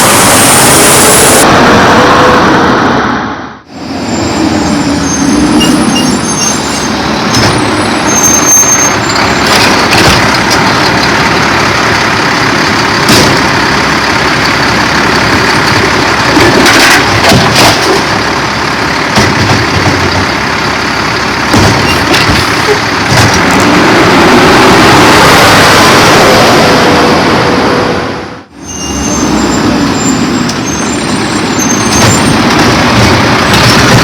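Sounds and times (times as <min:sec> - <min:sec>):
garbage truck running: 0:00.0 - 0:34.0
sharp knocks: 0:21.5 - 0:23.5.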